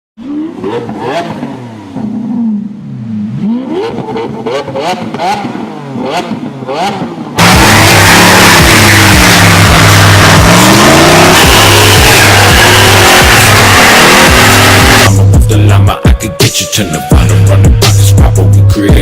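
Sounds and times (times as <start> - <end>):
engines revving: 0.2 - 15.3
loud music: 7.4 - 19.0.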